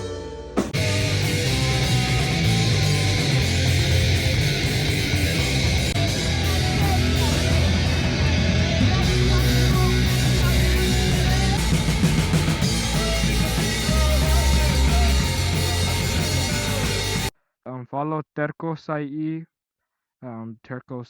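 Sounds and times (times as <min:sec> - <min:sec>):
rock band playing live: 0:00.0 - 0:17.3
person singing: 0:00.8 - 0:17.3.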